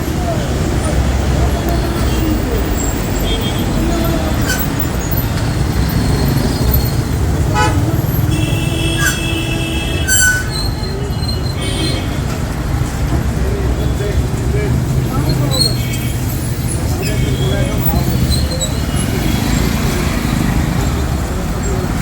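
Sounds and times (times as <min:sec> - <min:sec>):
heavy road traffic rumble: 0:00.0 - 0:22.0
vehicle horns honking: 0:01.9 - 0:04.8, 0:05.9 - 0:12.2, 0:16.9 - 0:18.4.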